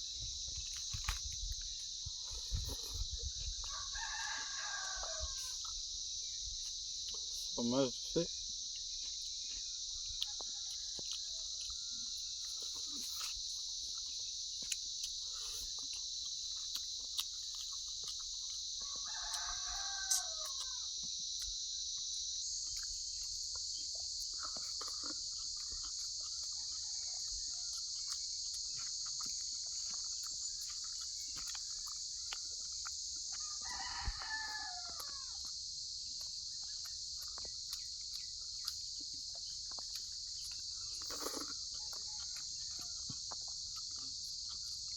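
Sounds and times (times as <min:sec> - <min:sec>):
crickets chirring: 0:00.0 - 0:44.9
rooster crowing: 0:03.5 - 0:05.7, 0:10.2 - 0:12.8, 0:18.8 - 0:21.0, 0:26.3 - 0:28.1, 0:33.3 - 0:35.5, 0:41.6 - 0:43.3.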